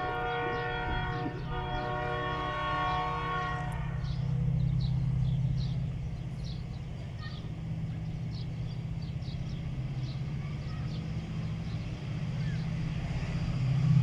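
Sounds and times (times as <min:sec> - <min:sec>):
locomotive horn chord: 0:00.0 - 0:06.6
diesel engine drone: 0:00.0 - 0:14.0.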